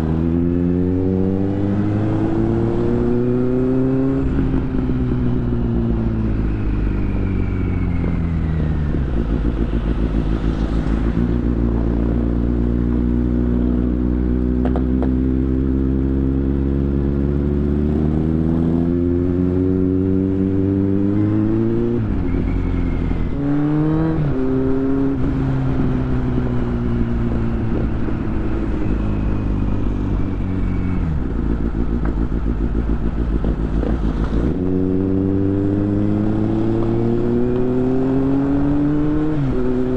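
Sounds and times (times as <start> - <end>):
motorbike engine revving: 8.7 - 39.9.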